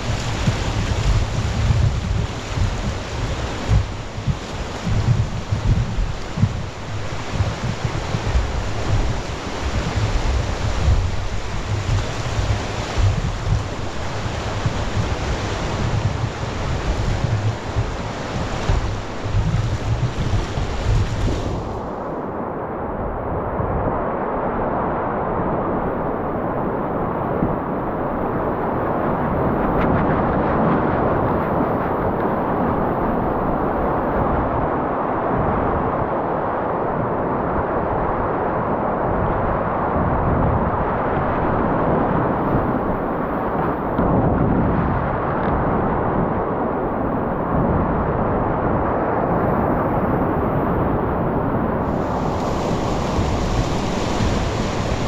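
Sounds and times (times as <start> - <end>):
river water rushing: 0.0 - 22.1, 51.8 - 55.0
wind buffeting microphone: 0.0 - 55.0.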